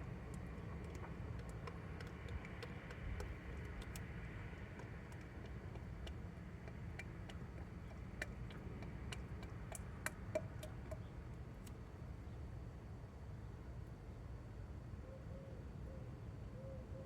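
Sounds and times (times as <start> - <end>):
oil draining through funnel clicks: 0.0 - 11.8
low steady hum: 0.0 - 17.0.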